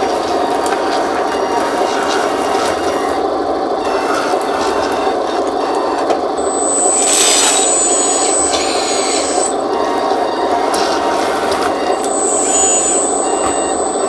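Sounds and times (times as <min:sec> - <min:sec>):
hydraulic pump and motors buzzing: 0:00.0 - 0:14.0
thin high whistle: 0:06.4 - 0:10.0, 0:11.8 - 0:14.0.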